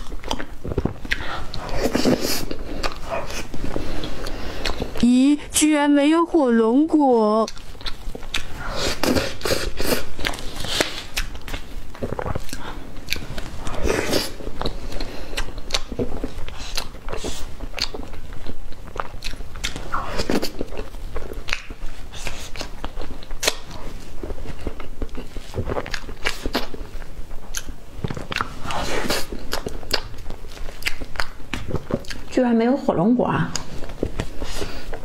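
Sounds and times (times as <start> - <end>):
woman chewing: 0.0 - 5.0, 7.4 - 32.4, 33.5 - 35.0
sharp mouth clicks: 7.4 - 11.6.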